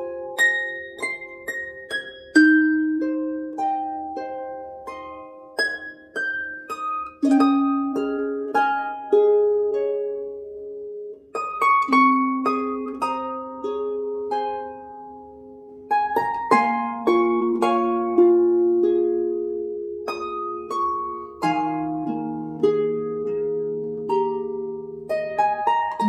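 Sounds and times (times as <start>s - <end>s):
plucked string melody: 0.0s - 26.0s.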